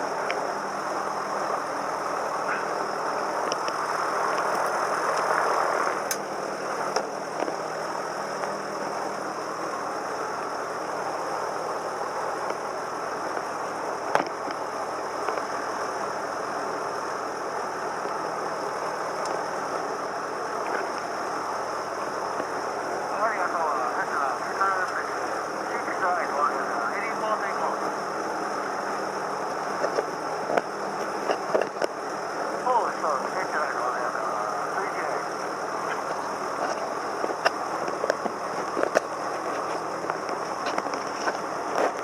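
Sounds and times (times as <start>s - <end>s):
airplane engine and propeller: 0.0s - 42.0s.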